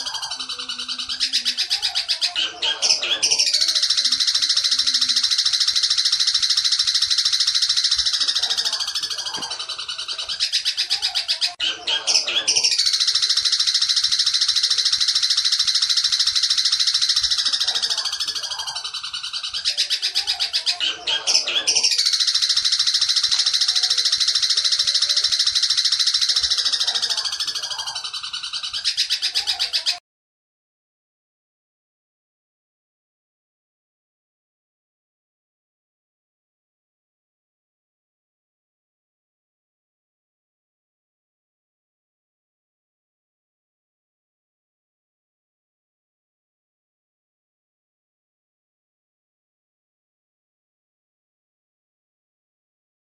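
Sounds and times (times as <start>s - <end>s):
bird singing high chattering song: 0.0s - 30.0s.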